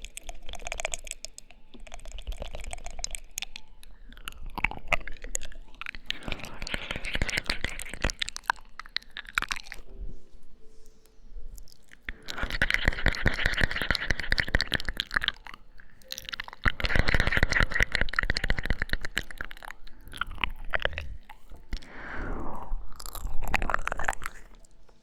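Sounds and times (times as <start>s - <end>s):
wet lip and tongue clicks: 0.0s - 9.9s, 11.5s - 25.0s
soft breathy sound: 5.6s - 18.4s, 19.0s - 25.0s.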